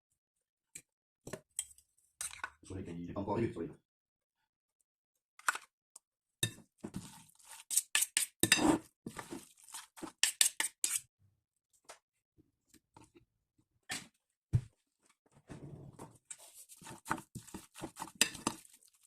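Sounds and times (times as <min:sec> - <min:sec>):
utensil clinking against bowl: 0:18.0 - 0:18.6.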